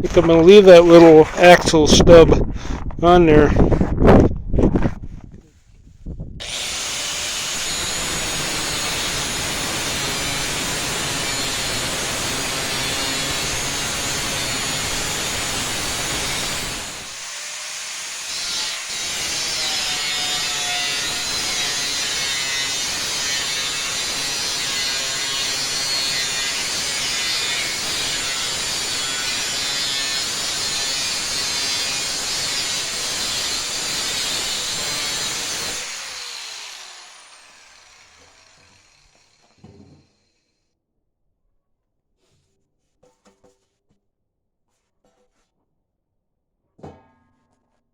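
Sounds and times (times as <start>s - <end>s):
power tool grinding metal: 6.4s - 40.5s.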